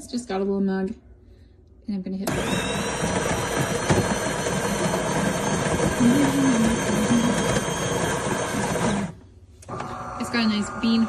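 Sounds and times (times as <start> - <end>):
coffee grinder grinding beans: 2.3 - 9.2.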